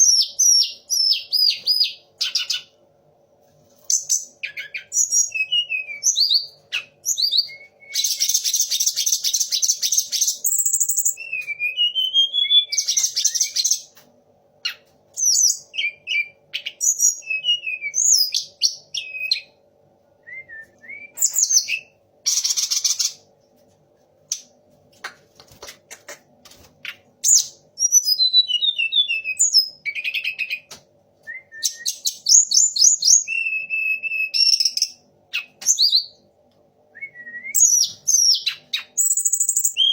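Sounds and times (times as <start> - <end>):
bird whistling song: 0.0 - 2.7, 3.9 - 13.9, 14.6 - 19.6, 20.2 - 23.2, 26.8 - 36.2, 37.0 - 39.9
faint steady hum: 0.0 - 39.9
bird harsh rattling trills: 22.3 - 23.2.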